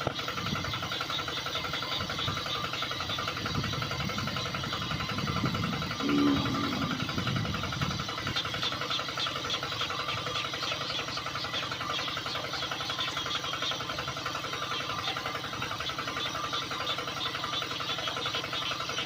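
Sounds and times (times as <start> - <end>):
small motor running: 0.0 - 19.0
fast even ticking: 1.6 - 11.4.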